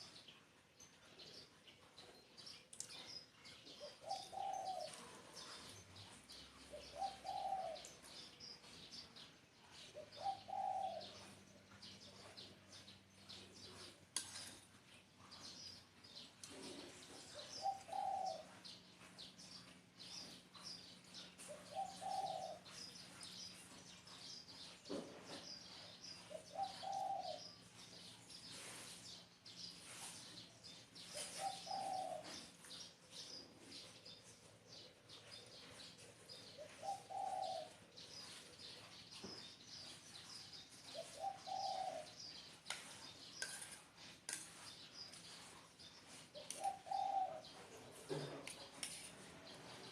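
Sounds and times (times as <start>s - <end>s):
small birds chirping: 0.0s - 49.9s
dove cooing: 3.7s - 5.6s, 6.4s - 8.3s, 9.8s - 11.4s, 16.5s - 18.8s, 21.4s - 22.8s, 26.2s - 27.5s, 31.0s - 32.5s, 36.3s - 38.7s, 40.9s - 42.4s, 46.3s - 48.5s.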